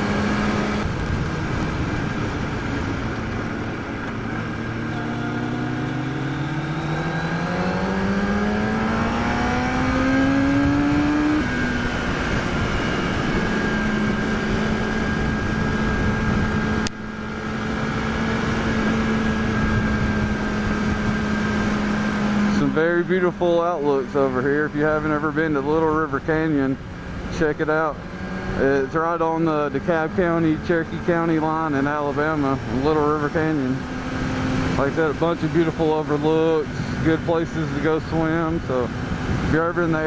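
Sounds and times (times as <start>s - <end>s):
wind rush: 0.0s - 4.8s, 6.0s - 22.4s, 37.9s - 40.0s
motorcycle engine: 0.0s - 40.0s.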